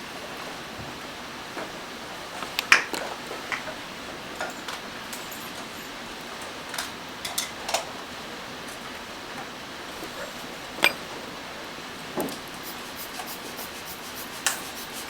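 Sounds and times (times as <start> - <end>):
small tools tapping metal: 10.8 - 11.0
room hiss: 12.5 - 15.0.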